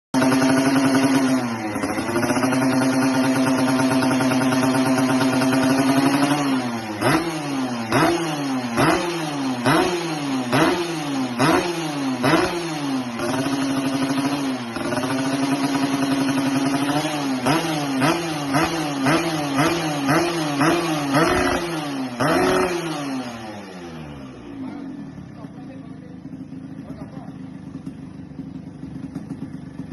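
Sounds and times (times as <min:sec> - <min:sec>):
two-stroke engine revving: 0:00.2 - 0:29.9.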